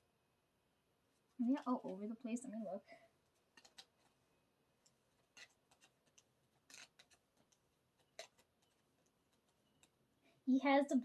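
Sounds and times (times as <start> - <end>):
cards being shuffled: 3.2 - 4.2, 4.8 - 10.0.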